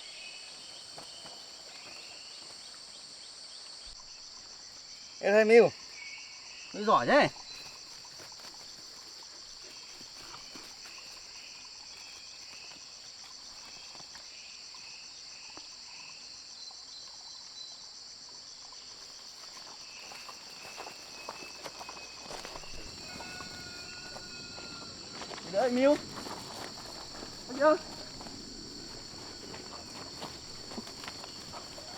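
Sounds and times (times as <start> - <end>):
crickets and insects trilling: 0.0 - 31.9
footsteps: 0.5 - 2.9, 19.0 - 31.9
faint chirps: 18.9 - 31.9
light rustling: 19.0 - 31.9.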